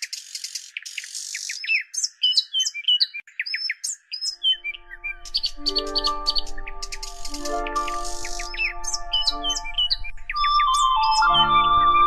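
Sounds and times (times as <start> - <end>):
birds chirping and whistling: 0.0 - 12.0
held musical notes with bass: 4.8 - 12.0.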